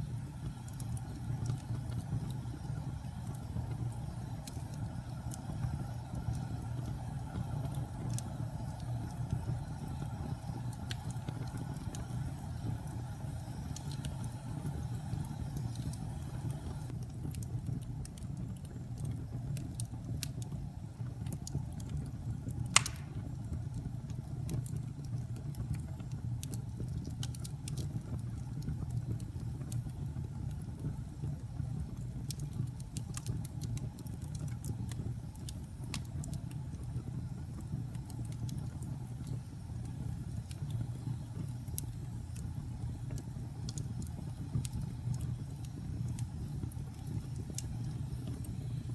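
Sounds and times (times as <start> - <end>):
wood fire crackling: 0.0 - 48.9
loud fire pop: 22.7 - 23.4.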